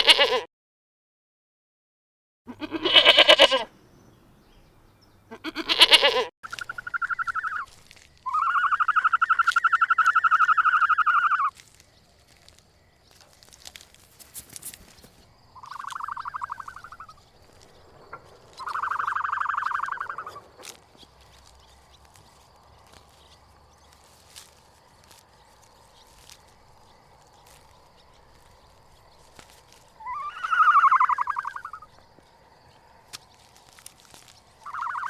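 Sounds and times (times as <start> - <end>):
goat or sheep bleating: 0.0 - 0.5, 2.5 - 3.7, 5.3 - 6.3.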